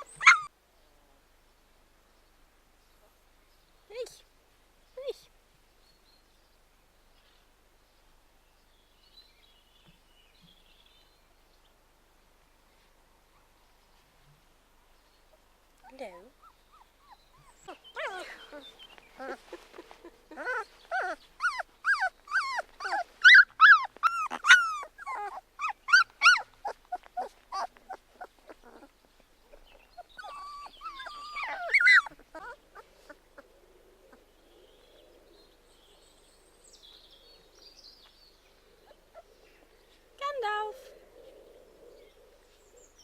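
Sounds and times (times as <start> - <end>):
puppies whining and squealing: 0.0 - 0.5, 16.4 - 28.9, 29.5 - 33.2
faint shuffling: 12.2 - 33.5.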